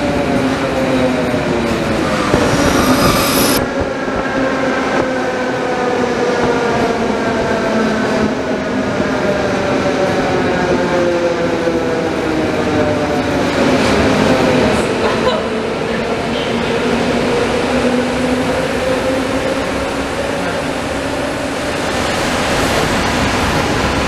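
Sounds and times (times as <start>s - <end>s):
train braking whine: 1.6s - 5.0s
high wheel squeal: 1.9s - 3.6s.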